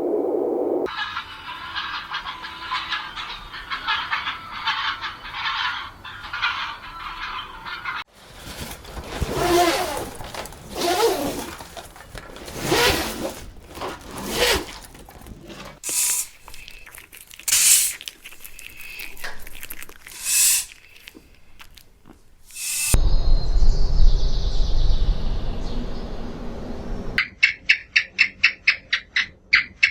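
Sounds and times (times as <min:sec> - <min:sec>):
short high noisy bursts: 0:20.2 - 0:20.7, 0:22.5 - 0:23.0.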